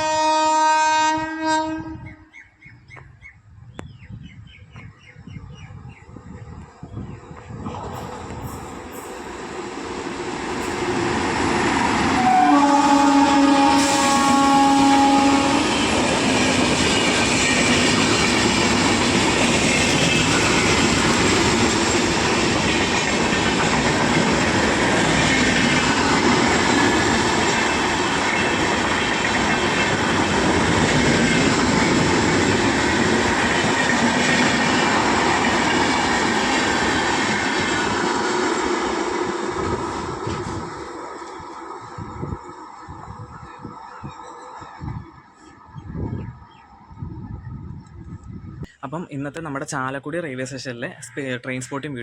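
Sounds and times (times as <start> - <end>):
train horn blast: 0.0 - 2.3, 12.0 - 16.0
train rumble and clatter: 4.2 - 48.6.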